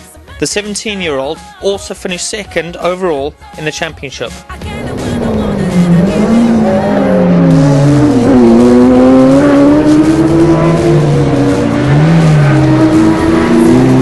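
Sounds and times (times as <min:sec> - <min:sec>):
rally car engine revving: 0:04.6 - 0:14.0.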